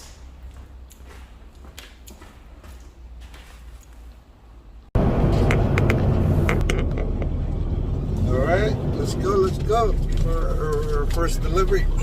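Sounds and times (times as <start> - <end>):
faint footsteps: 0.0 - 4.4
low steady rumble: 5.0 - 12.0.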